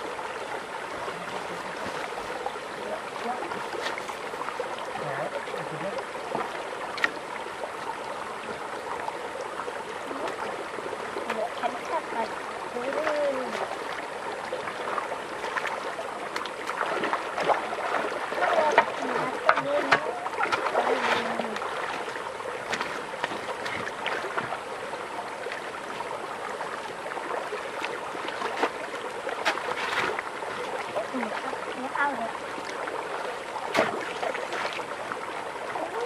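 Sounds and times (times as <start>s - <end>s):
water running and sloshing: 0.0s - 36.0s
small splashes: 1.0s - 26.1s, 27.2s - 36.0s.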